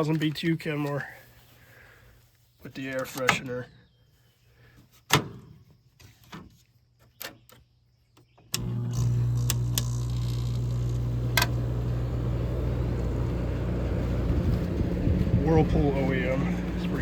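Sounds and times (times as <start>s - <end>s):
window air conditioner running: 8.6s - 17.0s.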